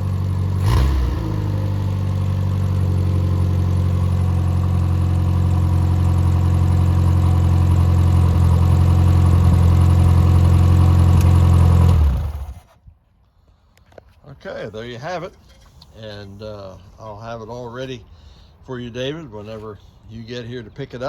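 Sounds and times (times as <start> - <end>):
car engine running without muffler: 0.0 - 12.6.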